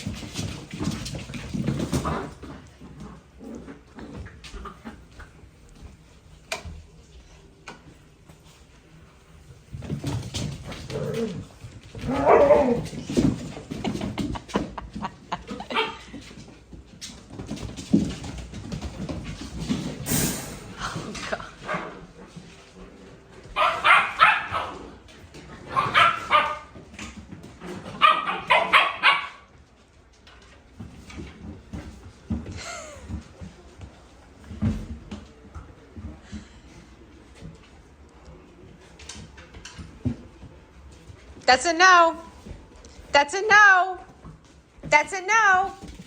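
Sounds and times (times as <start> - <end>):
dog barking: 23.6 - 24.8, 25.7 - 26.7, 28.0 - 29.4.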